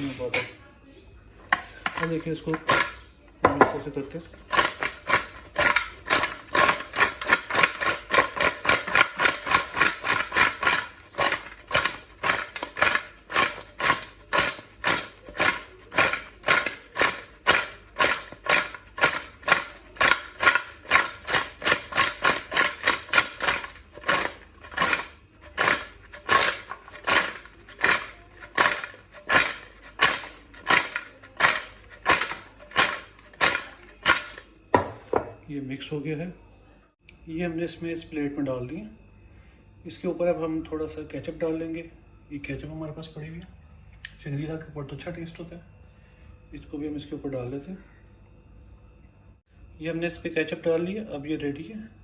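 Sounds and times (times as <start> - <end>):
fries tossed in a bowl clacking: 1.9 - 3.1, 3.8 - 34.5.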